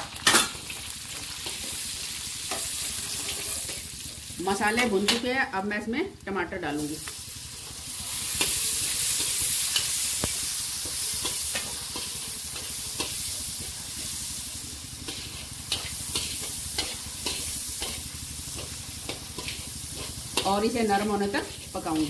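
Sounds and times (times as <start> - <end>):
tomatoes sizzling in hot oil: 0.0 - 22.0
metal spoon scraping and tapping pan: 15.1 - 22.0.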